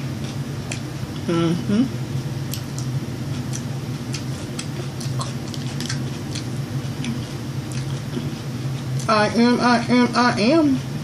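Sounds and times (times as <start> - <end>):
steady low hum: 0.0 - 11.0
mouth chewing wet clicks: 2.5 - 9.1.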